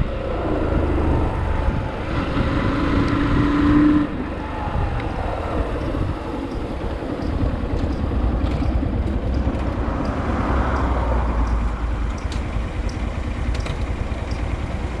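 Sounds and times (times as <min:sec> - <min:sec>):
wind on microphone: 0:00.0 - 0:11.9
motorcycle engine running: 0:00.0 - 0:15.0.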